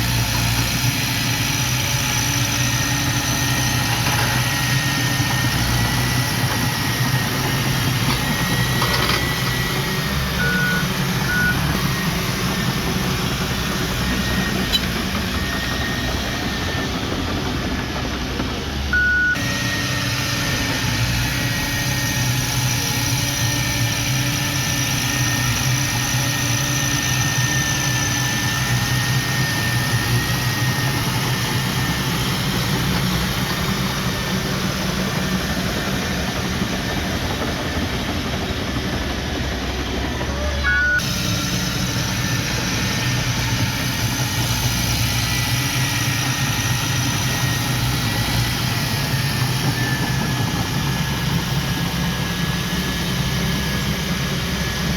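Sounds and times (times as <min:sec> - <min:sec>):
diesel earthmoving machinery running: 0:00.0 - 0:54.9
short beeps: 0:10.4 - 0:11.8, 0:19.0 - 0:19.4, 0:40.6 - 0:41.0.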